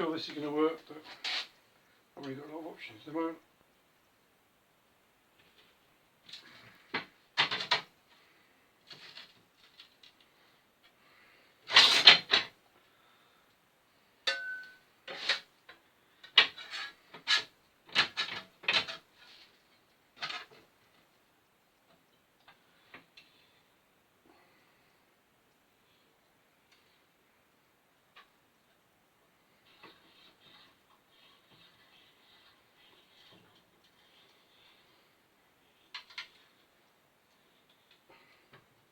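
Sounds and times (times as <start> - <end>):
brief metallic ring: 14.3 - 14.8.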